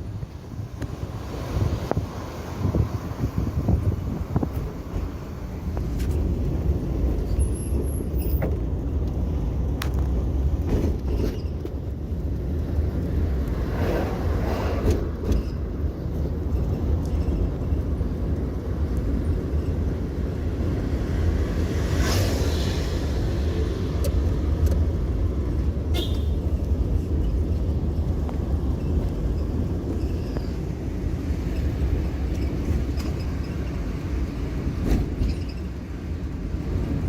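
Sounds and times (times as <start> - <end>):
wind on microphone: 0.0 - 7.3
road traffic: 0.0 - 37.0.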